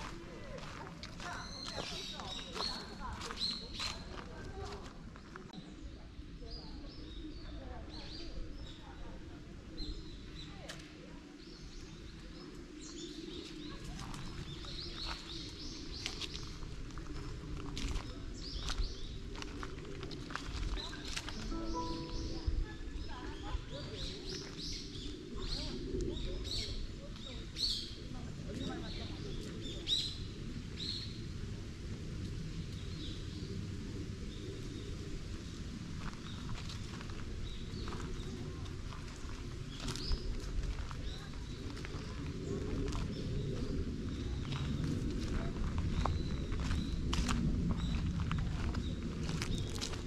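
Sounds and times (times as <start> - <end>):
small birds chirping: 0.0 - 31.2.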